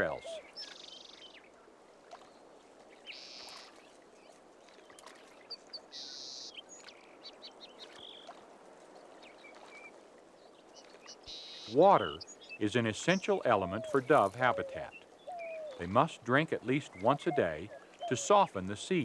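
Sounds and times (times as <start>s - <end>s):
small bird chirps: 3.0s - 3.8s.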